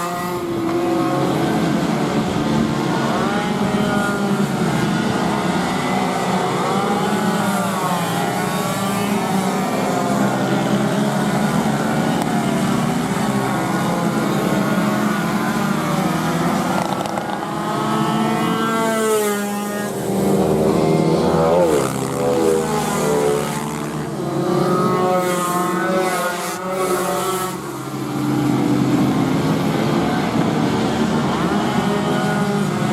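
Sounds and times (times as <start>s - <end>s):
motorcycle passing close: 0.0s - 32.9s
racing motorcycle engines revving: 0.0s - 32.9s.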